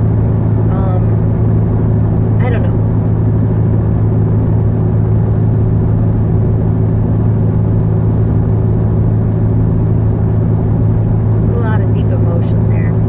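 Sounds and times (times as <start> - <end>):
car interior engine and road noise: 0.0 - 3.0, 8.1 - 13.0.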